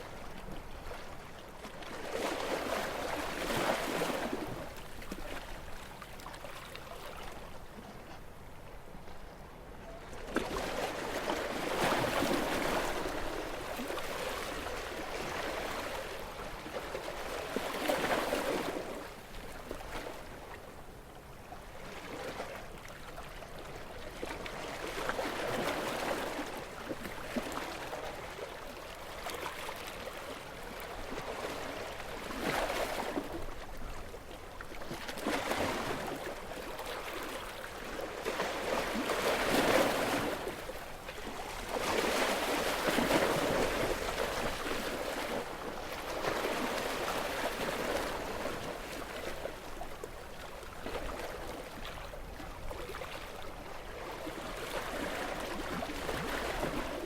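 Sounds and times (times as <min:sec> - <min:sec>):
gentle sea waves: 0:00.0 - 0:57.0.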